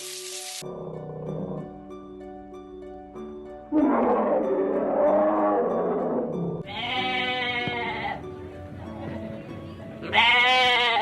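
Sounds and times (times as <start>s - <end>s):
background music: 0.0s - 11.0s
rough animal growl: 3.7s - 6.6s
animal bleating: 6.6s - 8.2s, 10.0s - 11.0s.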